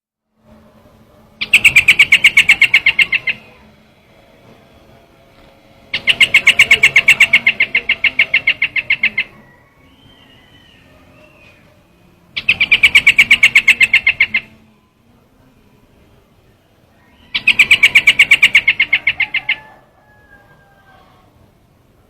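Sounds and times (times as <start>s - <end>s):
bird rapid chattering notes: 1.4s - 3.7s, 5.9s - 10.8s, 12.3s - 14.6s, 17.2s - 19.7s
faint bird calls: 1.4s - 3.9s, 5.8s - 14.9s, 16.9s - 21.5s.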